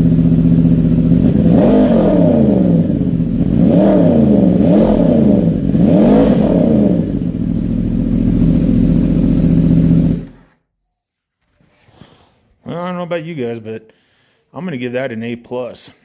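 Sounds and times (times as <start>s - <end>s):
motorcycle engine idling: 0.0s - 10.5s
motorcycle engine revving: 0.0s - 10.6s.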